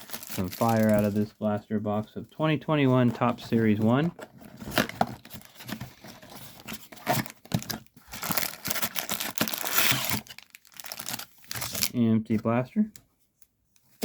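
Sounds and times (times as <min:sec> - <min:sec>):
packaging rustling and tearing: 0:00.0 - 0:01.2, 0:04.1 - 0:11.9.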